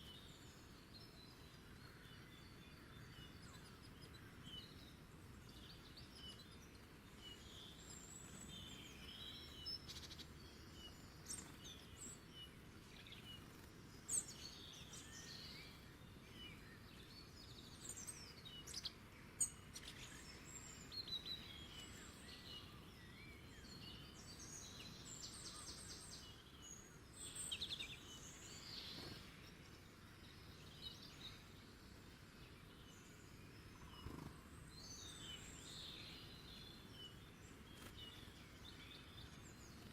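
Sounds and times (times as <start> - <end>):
birds chirping and trilling: 0.0 - 39.9
soft steady hiss: 0.0 - 39.9.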